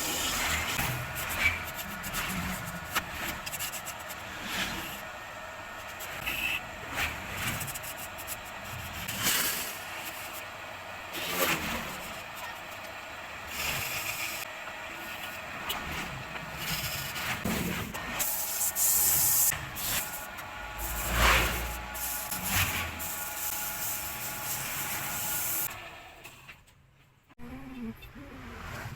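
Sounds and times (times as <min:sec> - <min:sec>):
wood being scraped and sanded: 0:00.0 - 0:05.1, 0:05.8 - 0:10.5, 0:13.4 - 0:25.7
mechanical hum: 0:00.0 - 0:28.9.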